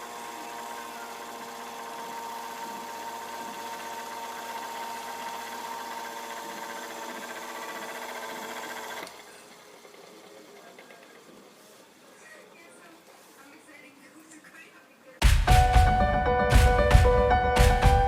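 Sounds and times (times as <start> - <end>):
electric fan motor whining: 0.0 - 12.0.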